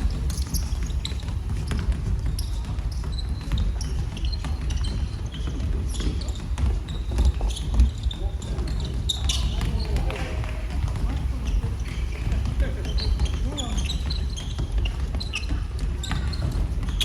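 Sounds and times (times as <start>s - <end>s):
basketball bouncing on floor: 0.0s - 17.0s
sneakers squeaking on court: 0.0s - 17.0s.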